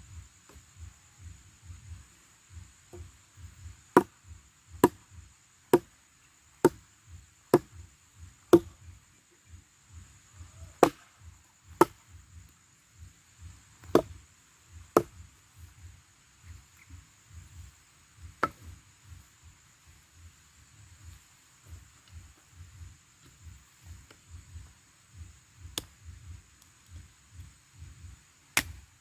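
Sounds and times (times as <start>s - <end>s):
wood being chopped: 3.9s - 4.2s, 4.8s - 5.1s, 5.7s - 6.0s, 6.6s - 6.8s, 7.5s - 7.8s, 8.4s - 8.8s, 10.8s - 11.1s, 11.7s - 12.0s, 13.8s - 14.2s, 14.9s - 15.3s, 18.4s - 18.8s, 25.7s - 26.0s, 28.5s - 28.8s.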